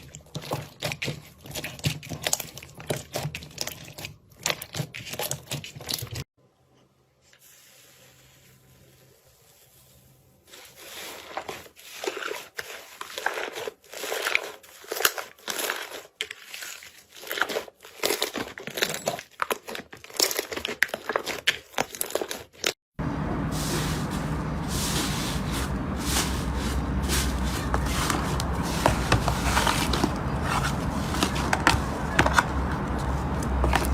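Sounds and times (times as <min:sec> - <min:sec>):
low hum: 0:23.0 - 0:33.9.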